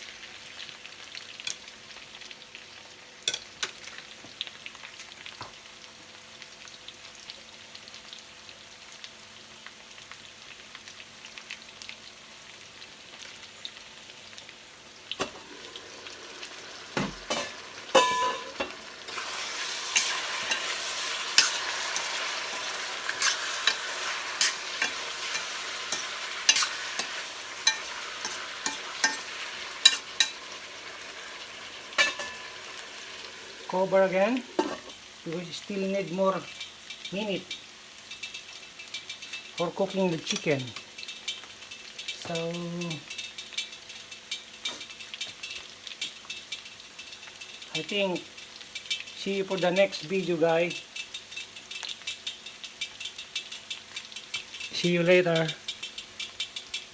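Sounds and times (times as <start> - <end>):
food sizzling in a pan: 0.0 - 56.9
spoon scraping a pan: 15.1 - 35.1, 36.4 - 50.1, 50.7 - 56.9.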